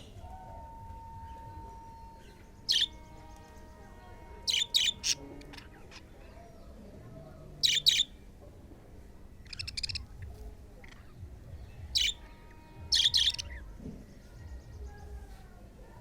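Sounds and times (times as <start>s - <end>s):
budgerigars chirping: 2.7s - 3.0s, 4.5s - 6.1s, 7.6s - 8.1s, 9.4s - 10.1s, 11.9s - 12.2s, 12.9s - 13.6s.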